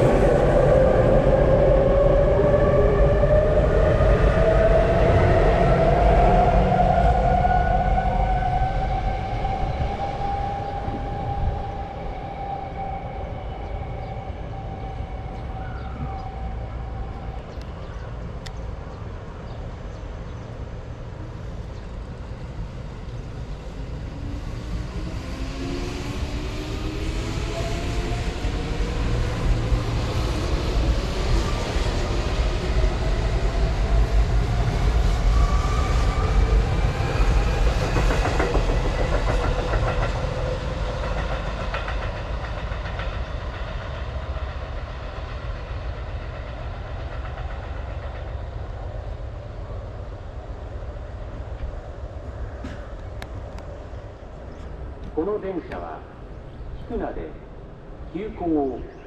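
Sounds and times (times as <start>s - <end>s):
heavy train rumble: 0.0s - 59.0s
wheels clacking over rail joints: 36.7s - 48.9s.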